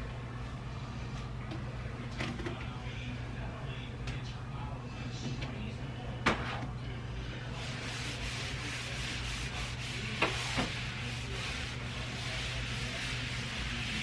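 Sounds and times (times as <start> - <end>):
steady low hum: 0.0 - 14.0
rubbing and rustling handling: 7.5 - 14.0.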